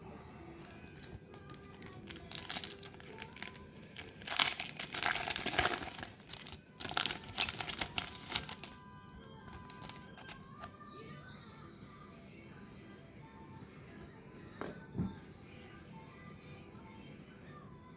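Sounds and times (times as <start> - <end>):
plastic wrapper crackling loudly: 0.6 - 10.7
plastic wrapper crinkling: 0.6 - 10.7.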